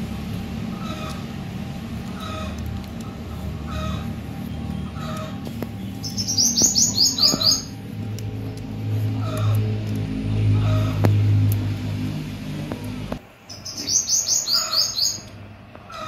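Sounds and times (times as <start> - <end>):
steady low hum: 0.0 - 16.0
small bird high chirps: 4.6 - 7.8, 13.5 - 16.0.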